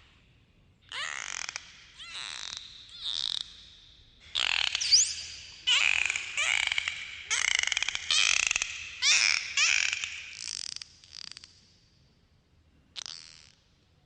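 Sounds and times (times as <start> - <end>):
dolphins clicking: 0.9 - 10.8
dolphin whistles: 4.4 - 10.4.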